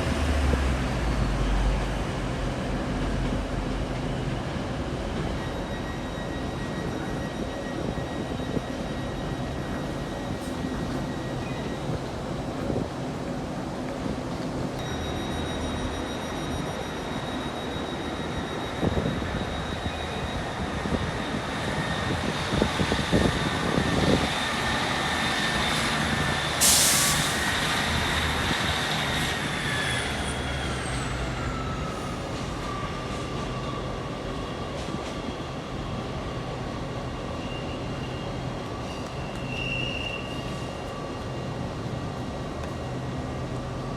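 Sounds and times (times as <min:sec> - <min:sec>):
air hissing: 0:26.5 - 0:27.5.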